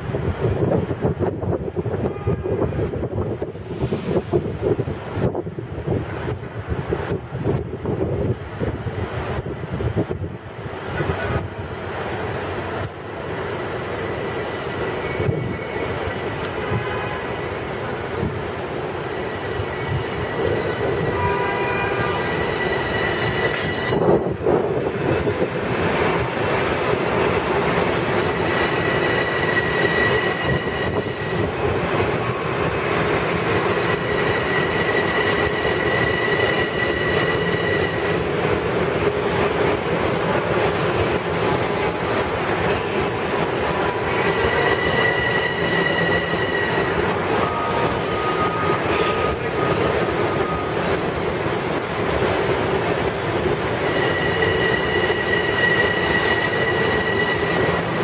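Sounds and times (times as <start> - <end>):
clatter of wheels on rail: 2.8 - 58.0
high squeal: 13.8 - 16.5, 17.4 - 24.2, 28.4 - 31.5, 33.7 - 38.2, 42.8 - 50.8, 53.7 - 58.0.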